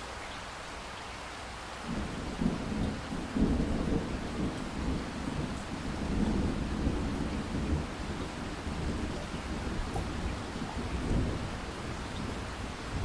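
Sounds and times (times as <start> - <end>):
rain hissing: 0.0 - 13.0
rumble of thunder: 1.9 - 13.0.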